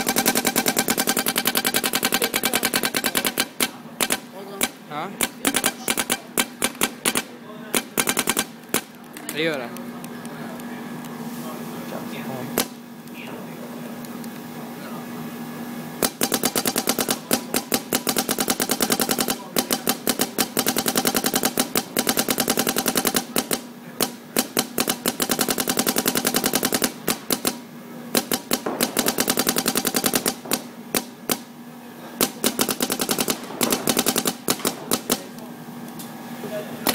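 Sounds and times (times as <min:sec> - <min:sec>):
paintball marker firing: 0:00.0 - 0:09.1, 0:16.0 - 0:31.5, 0:32.2 - 0:35.4.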